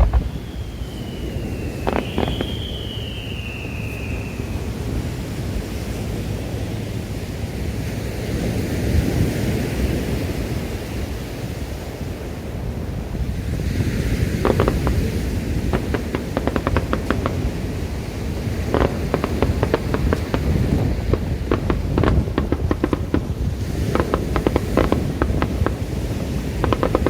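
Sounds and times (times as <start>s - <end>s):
crackling firework stars: 0.0s - 6.7s, 13.2s - 27.0s
wind on microphone: 0.0s - 27.0s
surf: 1.6s - 2.9s, 13.6s - 27.0s.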